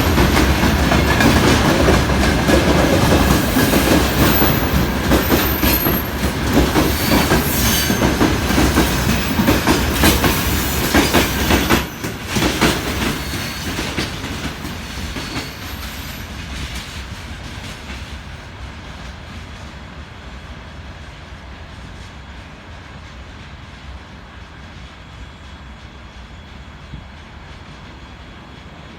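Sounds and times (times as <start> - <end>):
train wheel clatter: 0.0 - 19.8
high wheel squeals: 3.2 - 12.2, 13.0 - 14.2, 15.0 - 16.3.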